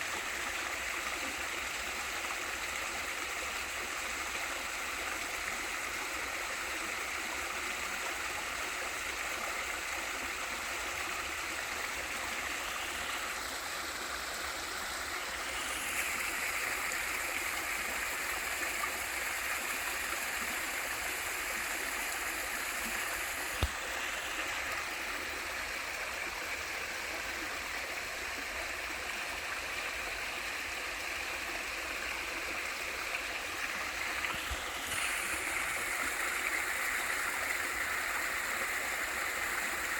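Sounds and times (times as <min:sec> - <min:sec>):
waterfall and stream rushing: 0:10.4 - 0:39.9.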